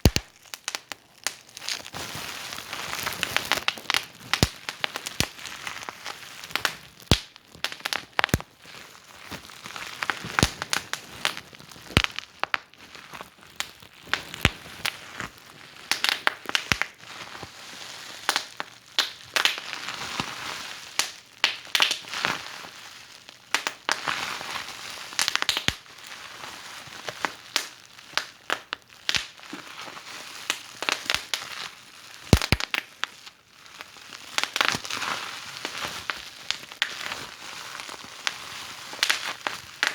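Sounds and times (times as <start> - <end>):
wood fire crackling: 0.0 - 17.0, 32.2 - 32.9, 35.6 - 39.9.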